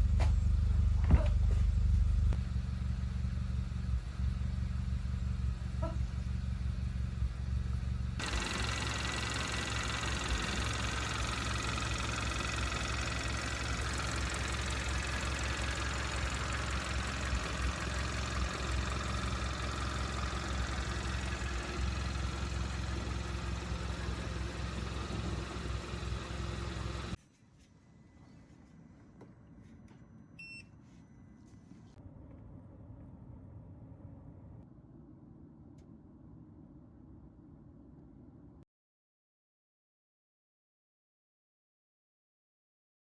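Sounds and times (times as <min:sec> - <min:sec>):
car engine idling: 0:00.0 - 0:27.2.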